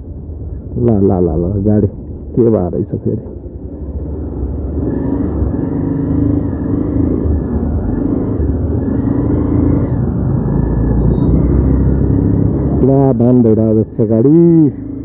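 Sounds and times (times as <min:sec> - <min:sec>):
motorcycle engine running: 0:03.3 - 0:15.0.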